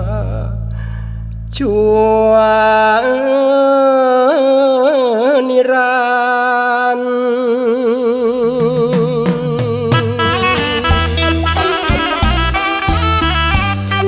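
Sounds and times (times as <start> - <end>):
singer holding long note: 6.9 - 13.6
bass and drums: 8.6 - 14.0.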